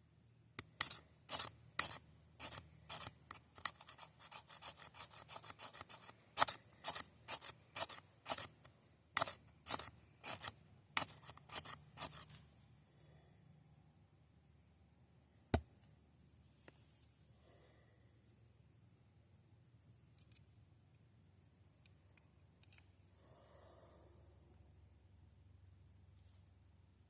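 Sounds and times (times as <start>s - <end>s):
rasping scrapes: 0.7s - 12.4s.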